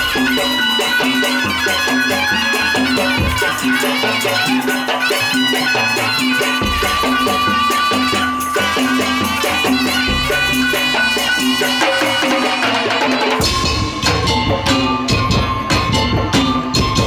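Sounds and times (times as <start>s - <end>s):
percussion ensemble playing: 0.0s - 17.0s.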